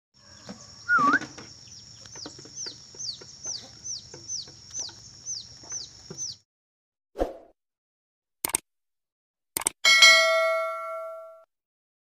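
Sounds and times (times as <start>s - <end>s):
bird squawk: 0.2s - 1.5s
short high bird chirps: 0.8s - 1.4s.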